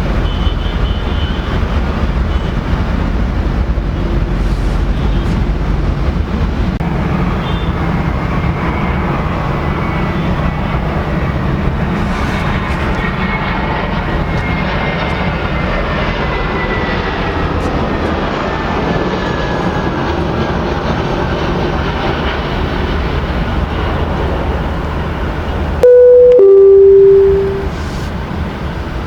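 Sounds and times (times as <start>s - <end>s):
two-note tone: 25.8s - 27.8s.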